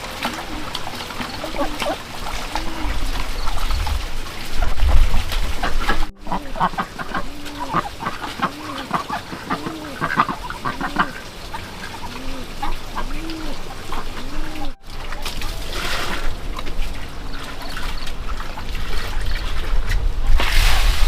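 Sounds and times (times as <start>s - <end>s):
poultry calling: 0.0s - 3.8s, 5.6s - 14.8s
rustling trickling noise: 0.0s - 21.0s.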